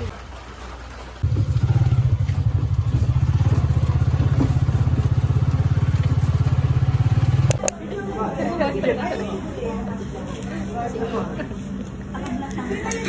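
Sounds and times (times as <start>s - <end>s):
small combustion engine running: 1.2s - 7.7s.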